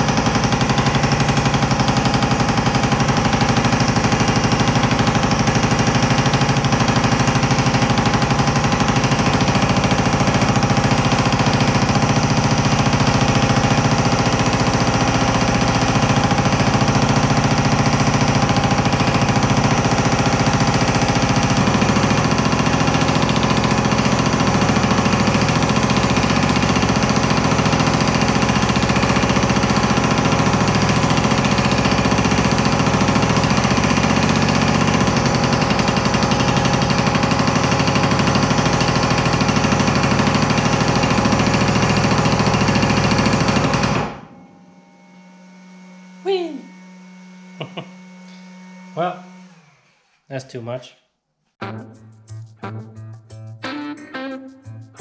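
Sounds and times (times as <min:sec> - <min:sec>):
power hammer pounding sheet steel: 0:00.0 - 0:44.8
low hum: 0:44.0 - 0:49.8.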